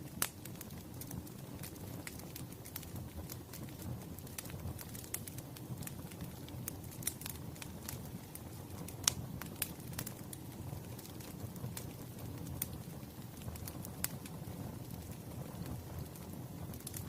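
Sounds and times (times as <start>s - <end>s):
low rumble of burning: 0.0s - 17.0s
wood fire crackling: 0.0s - 17.0s.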